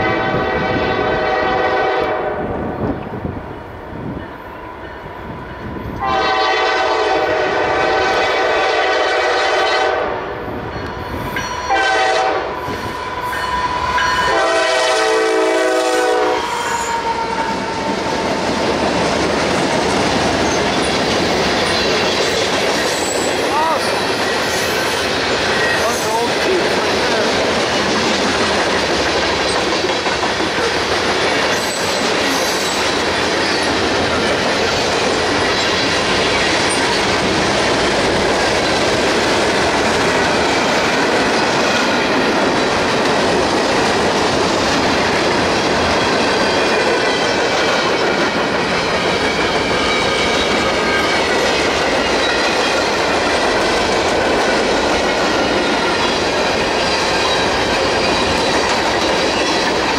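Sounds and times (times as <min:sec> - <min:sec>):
freight train wheels rumbling: 0:00.0 - 0:59.9
wheels squealing on rail: 0:10.6 - 0:18.4, 0:20.3 - 0:26.3, 0:31.3 - 0:38.2, 0:48.8 - 0:53.7
clickety-clack over rail joints: 0:16.4 - 0:59.9.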